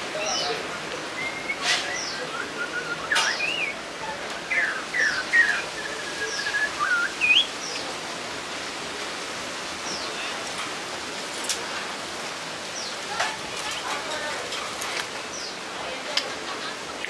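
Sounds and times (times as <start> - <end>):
background hiss: 0.0 - 13.9
songbird whistling: 1.2 - 3.8, 4.5 - 7.5.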